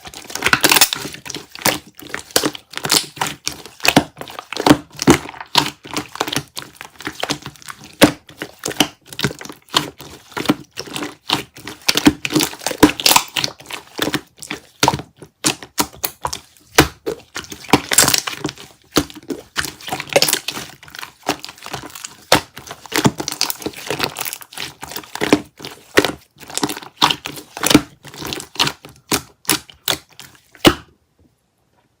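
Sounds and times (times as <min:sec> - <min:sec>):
dense crackling and crinkling: 0:00.0 - 0:30.5.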